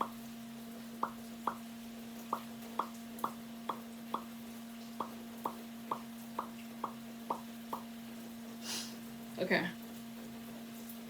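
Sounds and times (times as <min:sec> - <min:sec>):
water drops plopping: 0:01.0 - 0:08.0.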